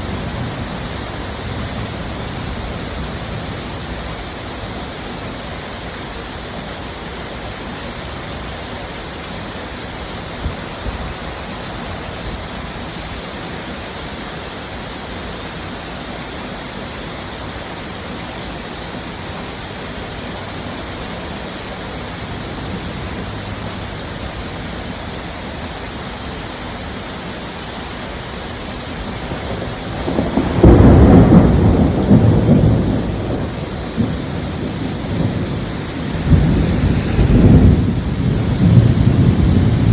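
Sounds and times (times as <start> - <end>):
torrential rain: 0.0 - 39.9
thunder rumbling: 21.6 - 25.3, 29.0 - 39.9.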